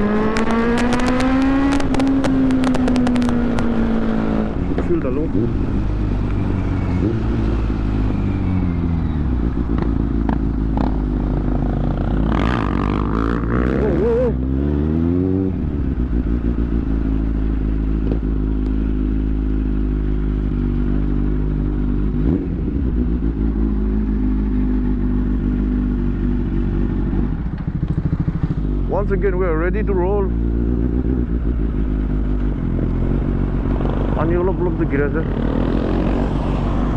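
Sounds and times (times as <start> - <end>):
sharp clicks and clatter: 0.2 - 3.8
motorcycle engine idling: 23.0 - 33.6.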